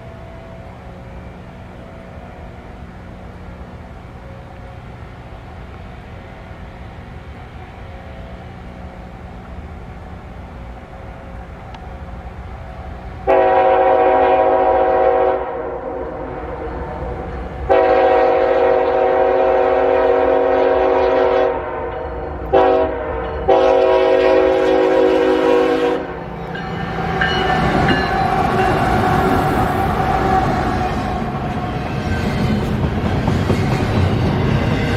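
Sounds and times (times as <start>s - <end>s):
locomotive air horn blasts: 13.2s - 16.7s, 17.7s - 26.3s
train wheels clattering: 26.3s - 34.9s.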